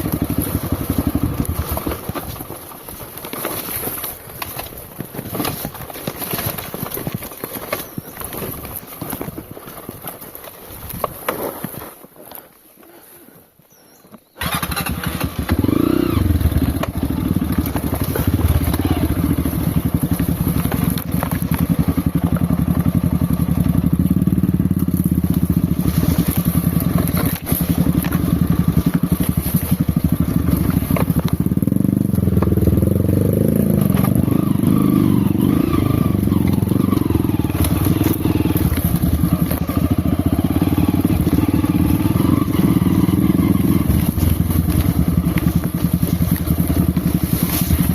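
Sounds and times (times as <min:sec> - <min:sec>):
off-road motorcycle engine revving: 0:00.0 - 0:10.5, 0:14.4 - 0:47.9.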